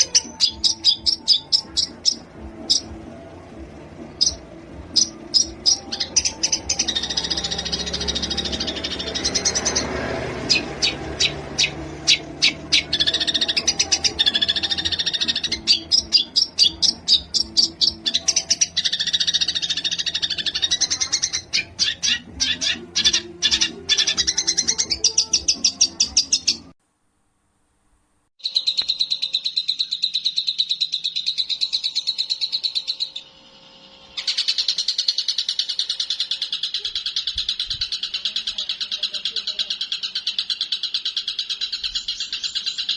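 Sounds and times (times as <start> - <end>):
fast high bird trill: 0.0 - 3.0, 4.1 - 26.7
songbird clicking and trilling: 0.0 - 3.0, 4.1 - 26.7, 28.4 - 33.3, 34.1 - 42.9.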